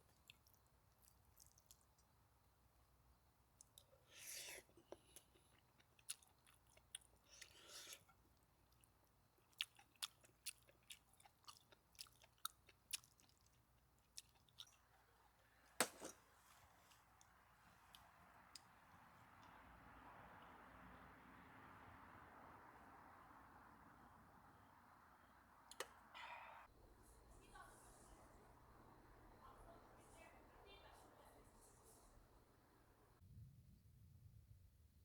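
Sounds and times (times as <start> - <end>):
faint small clicks and crackles: 0.0 - 2.2
sharp crack: 15.8 - 16.2.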